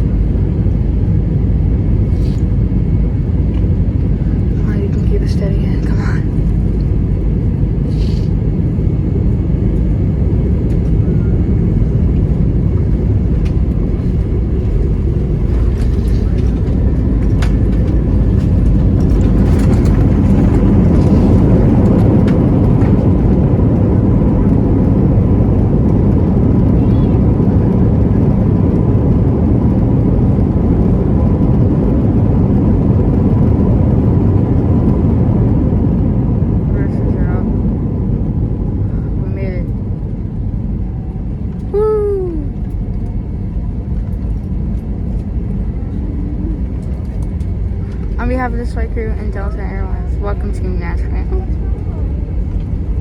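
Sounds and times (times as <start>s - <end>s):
rushing air: 0.0s - 4.8s, 5.6s - 23.9s
airplane cabin engine rumble: 0.0s - 53.0s.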